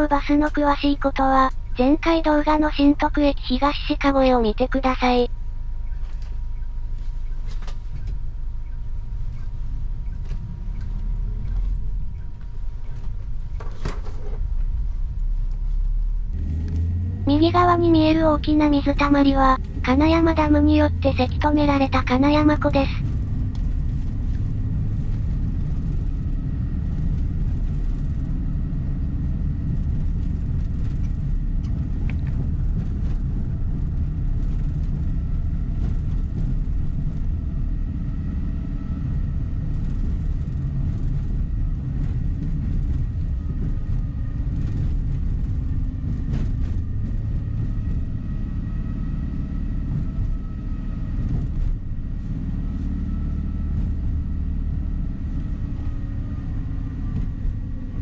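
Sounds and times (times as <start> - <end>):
coach engine and road rumble: 0.0 - 58.0
faint whine: 16.4 - 48.1.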